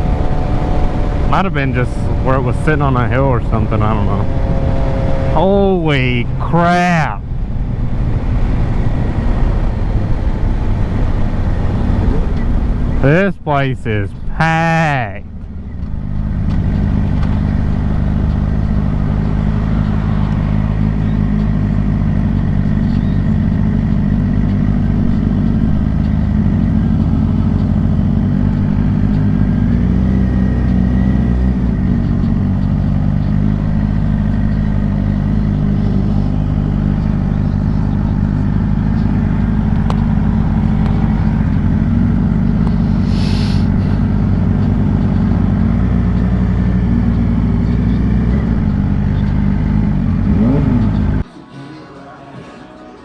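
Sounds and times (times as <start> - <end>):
motorcycle engine running steadily: 0.0 - 51.2
brief hiss: 43.0 - 43.9.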